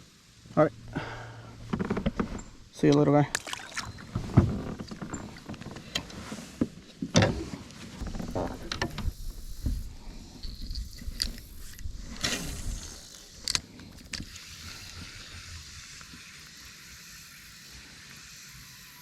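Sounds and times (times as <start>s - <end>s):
fishing gear clicks and knocks: 0.8s - 6.2s, 8.0s - 15.0s
steady hiss: 8.0s - 19.0s.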